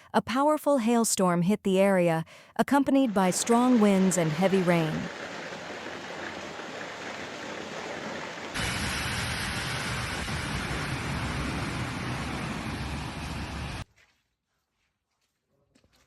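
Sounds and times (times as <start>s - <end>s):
hail and heavy rain: 3.1s - 13.8s
deep rumble: 5.1s - 13.8s.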